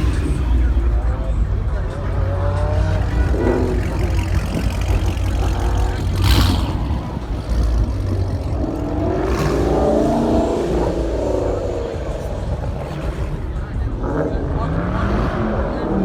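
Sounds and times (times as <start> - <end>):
car engines rumbling: 0.0 - 16.0.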